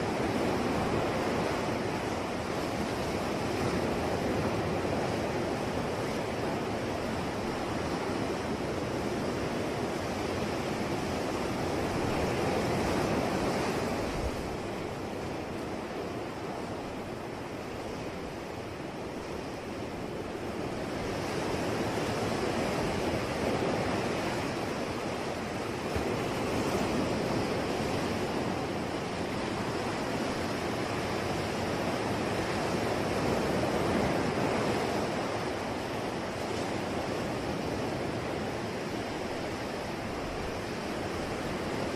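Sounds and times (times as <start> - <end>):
ocean waves breaking: 0.0 - 41.9.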